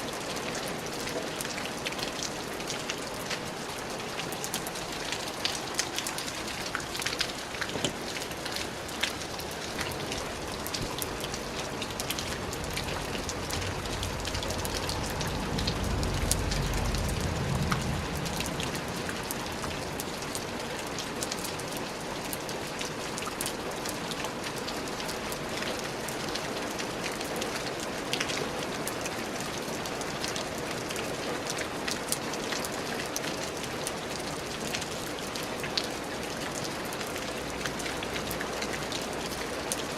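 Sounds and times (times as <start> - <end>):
rain drops ticking on surface: 0.0 - 39.9
low rumble: 12.3 - 19.9.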